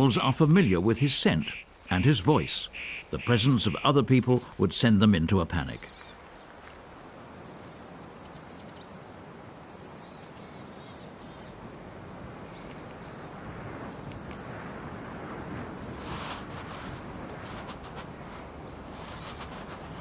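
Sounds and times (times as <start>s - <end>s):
steady background hiss: 0.0s - 20.0s
small birds calling: 1.2s - 4.4s, 5.6s - 13.4s, 14.1s - 14.6s, 18.7s - 20.0s.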